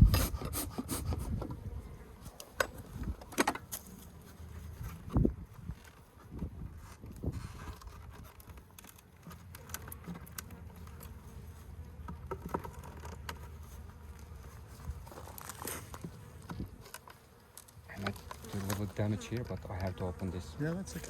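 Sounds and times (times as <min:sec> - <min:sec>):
bees buzzing: 0:09.5 - 0:21.0.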